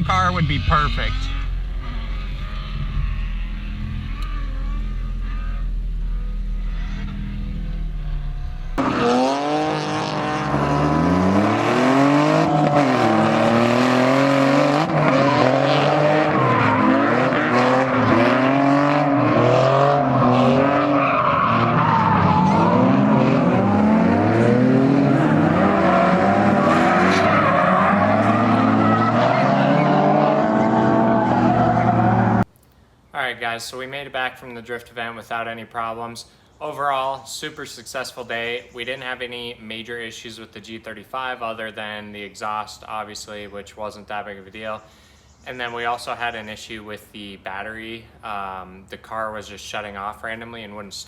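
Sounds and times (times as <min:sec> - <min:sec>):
car engine revving: 0:00.0 - 0:32.5
tires squealing and skidding: 0:08.8 - 0:32.4.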